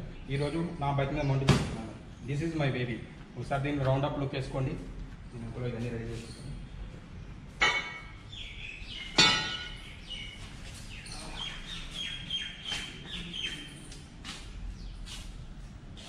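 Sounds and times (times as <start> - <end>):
birds chirping: 6.1 - 15.4.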